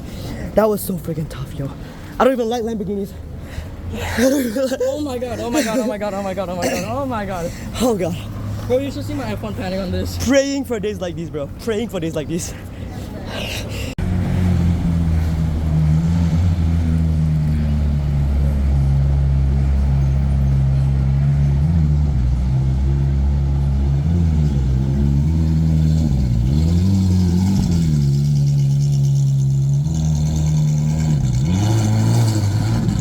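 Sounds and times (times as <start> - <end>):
car engine running: 14.0 - 33.0.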